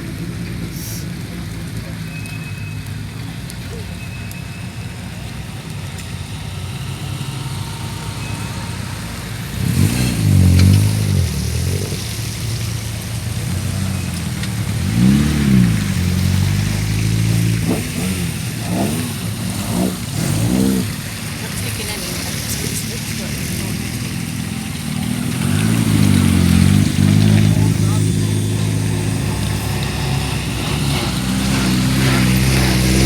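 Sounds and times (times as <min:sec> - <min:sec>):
car engine idling and revving: 0:00.0 - 0:33.0.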